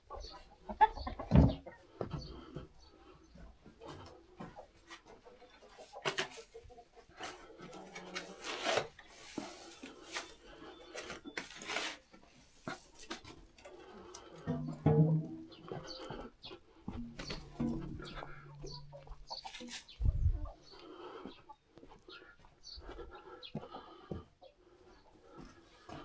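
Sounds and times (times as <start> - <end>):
scraping and rustling: 5.7 - 13.4, 17.0 - 20.2.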